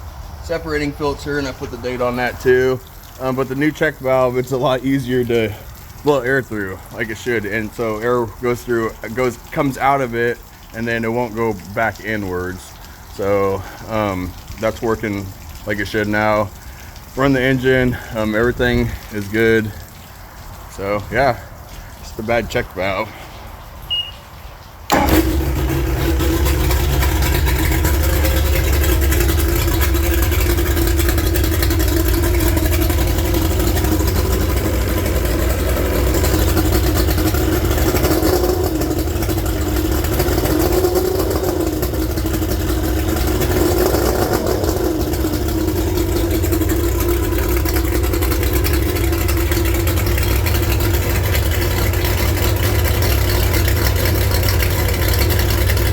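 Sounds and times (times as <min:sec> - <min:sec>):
outboard motor running: 0:24.9 - 0:55.9.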